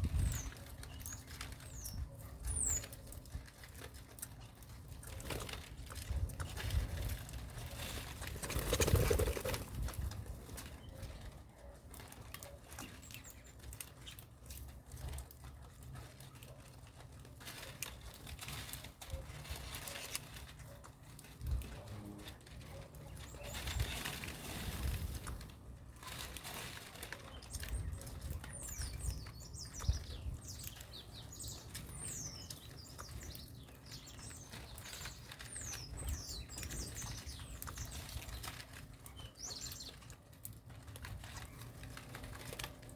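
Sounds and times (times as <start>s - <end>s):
birds fluttering wings: 2.7s - 11.3s, 17.4s - 42.9s.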